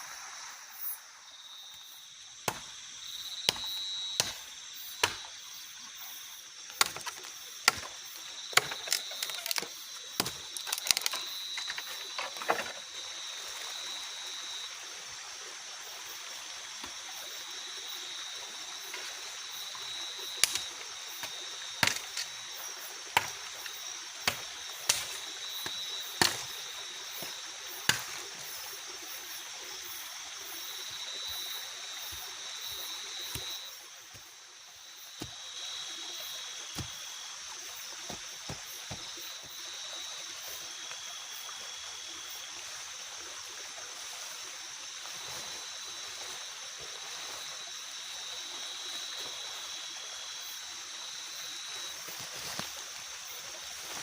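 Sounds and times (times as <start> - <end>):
high-pitched insect drone: 0.0 - 42.5.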